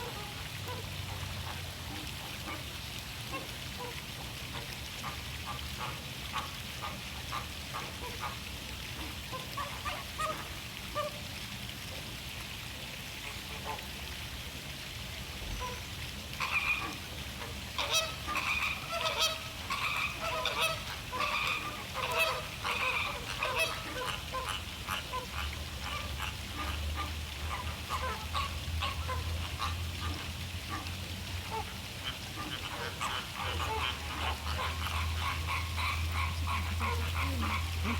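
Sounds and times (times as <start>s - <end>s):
flamingos honking: 16.4s - 30.8s, 31.4s - 37.9s.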